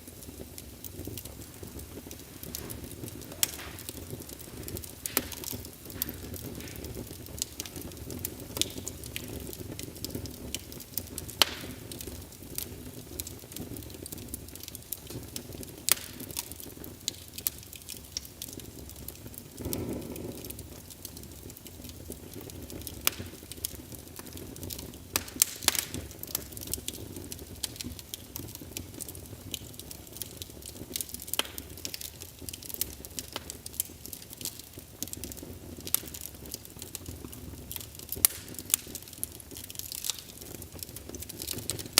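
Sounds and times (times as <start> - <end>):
low rumble of flames: 0.0 - 41.9
wood fire crackling and popping: 0.0 - 41.9
fire whoosh: 0.1 - 8.2.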